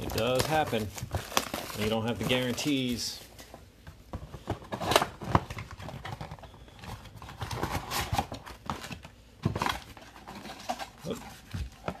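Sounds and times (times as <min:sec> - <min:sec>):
card pile clattering: 0:00.0 - 0:03.5.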